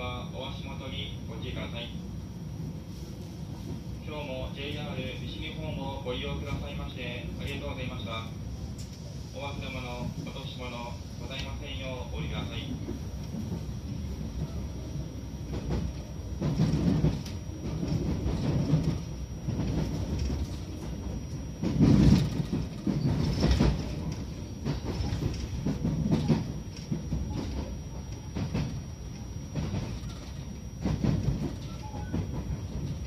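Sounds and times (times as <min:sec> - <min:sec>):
train carriage jolt: 0:03.4 - 0:33.0
train wheels clacking over joints: 0:15.5 - 0:33.0.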